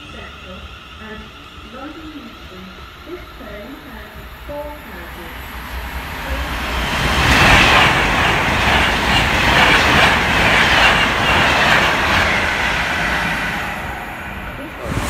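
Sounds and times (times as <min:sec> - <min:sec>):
express train passing at speed: 0:00.0 - 0:15.0.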